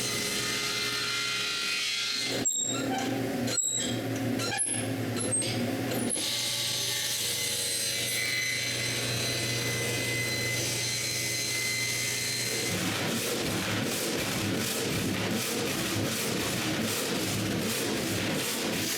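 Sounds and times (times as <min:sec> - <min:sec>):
power saw cutting log: 0:06.2 - 0:18.9.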